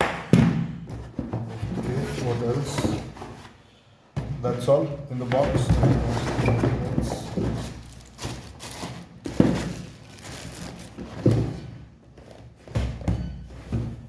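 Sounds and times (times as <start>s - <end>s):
packaging knocks and thuds: 0.3s - 3.5s, 4.2s - 14.0s
packaging crinkling: 5.8s - 11.4s.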